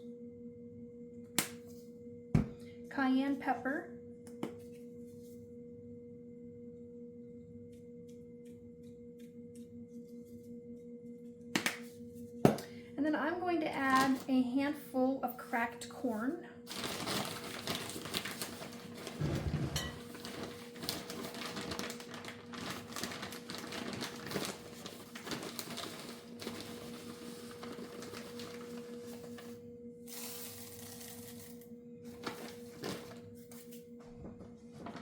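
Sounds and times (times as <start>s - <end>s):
steady low hum: 0.0s - 16.7s, 19.0s - 35.0s
dry corn clicking and rattling: 16.7s - 19.2s, 20.2s - 28.6s.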